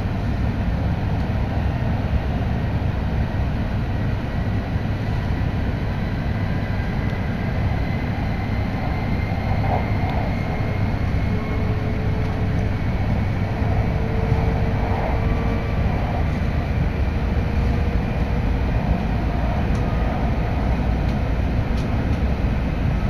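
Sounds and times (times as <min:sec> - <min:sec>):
deep train rumble: 0:00.0 - 0:23.0
faint high whine: 0:04.4 - 0:21.6.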